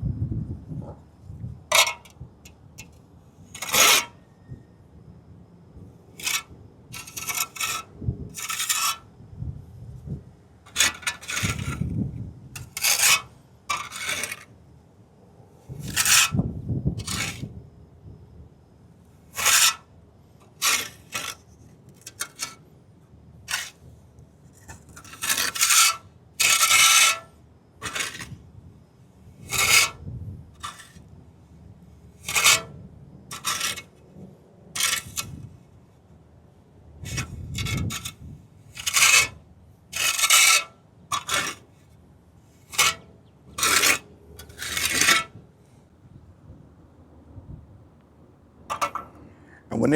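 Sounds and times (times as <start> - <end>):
trowel scraping wet cement: 3.6 - 4.1, 6.2 - 9.0, 10.7 - 11.9, 12.6 - 14.5, 15.8 - 16.4, 17.0 - 17.5, 19.4 - 19.8, 20.5 - 22.6, 23.5 - 23.8, 24.7 - 28.4, 29.5 - 30.0, 30.6 - 31.0, 32.2 - 32.7, 33.3 - 33.9, 34.8 - 35.4, 38.8 - 41.7, 42.6 - 43.0, 43.6 - 45.3.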